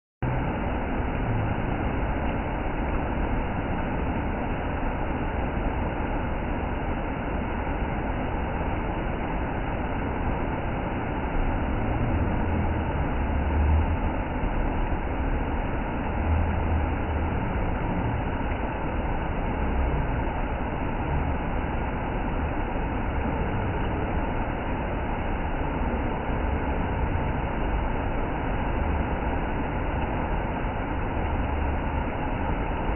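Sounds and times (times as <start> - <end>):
waterfall roaring: 0.3 - 32.9.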